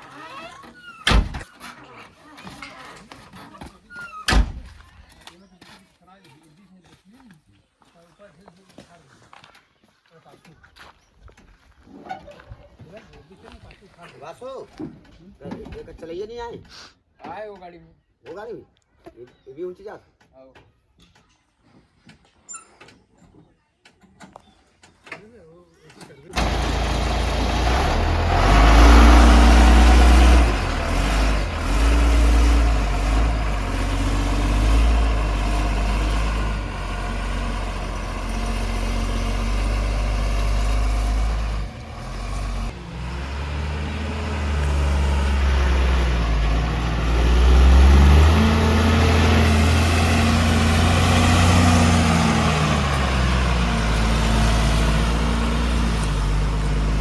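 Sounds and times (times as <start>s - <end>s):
diesel engine revving under load: 26.3s - 57.0s.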